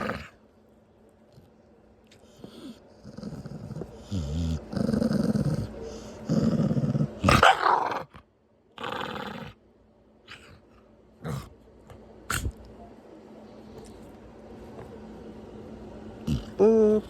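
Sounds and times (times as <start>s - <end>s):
dog grunting and growling: 0.0s - 0.4s, 2.2s - 8.2s, 8.8s - 9.6s, 10.3s - 12.6s, 16.2s - 17.0s.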